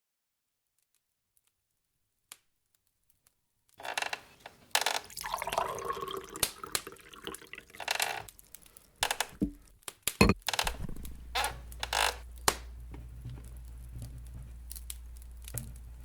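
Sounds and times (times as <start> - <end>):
coffee pouring into a cup: 5.0 - 8.3.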